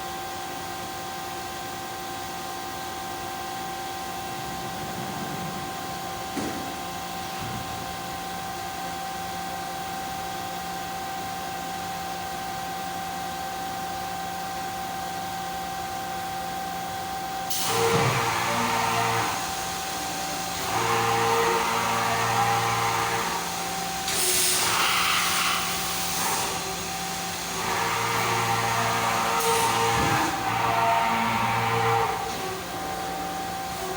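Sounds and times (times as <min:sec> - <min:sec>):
cnc machine whining: 0:01.5 - 0:08.6, 0:17.5 - 0:33.9.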